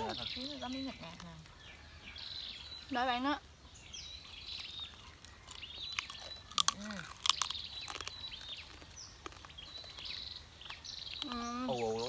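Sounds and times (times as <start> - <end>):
small birds chirping: 0.0 - 12.0
chewing crispy fried food: 4.2 - 12.0.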